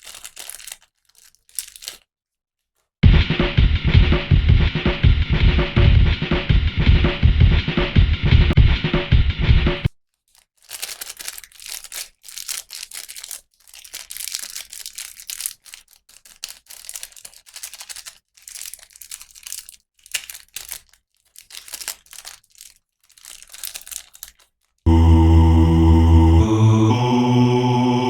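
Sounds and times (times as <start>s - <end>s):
plastic packaging crinkling: 0.0s - 3.0s, 10.0s - 24.9s
music: 3.0s - 9.9s, 24.9s - 28.0s.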